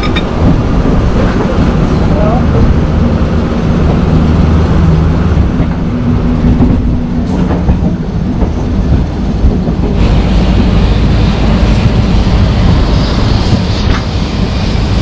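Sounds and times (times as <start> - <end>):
electric train rumble and hum: 0.0 - 15.0.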